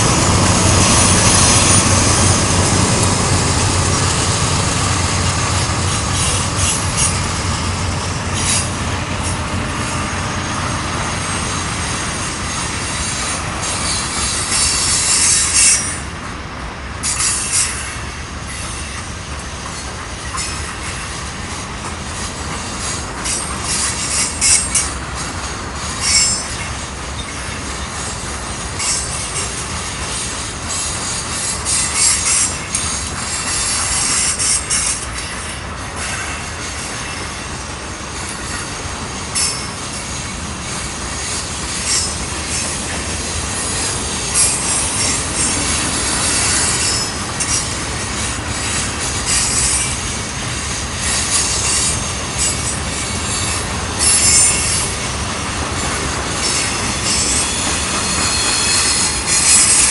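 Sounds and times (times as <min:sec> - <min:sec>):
train wheels rumbling on rail: 0:00.0 - 0:59.9
high-pitched wheel squeal: 0:41.1 - 0:50.1, 0:51.0 - 0:55.1, 0:55.9 - 0:59.9.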